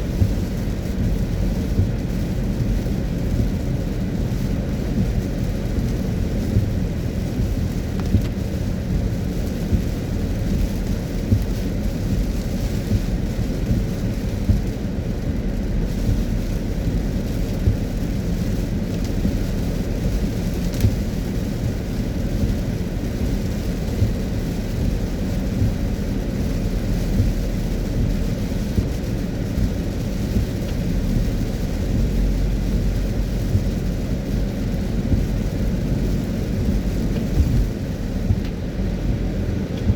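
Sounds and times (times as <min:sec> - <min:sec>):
raindrops striking car: 0:00.0 - 0:39.9
road and engine rumble: 0:00.0 - 0:39.9.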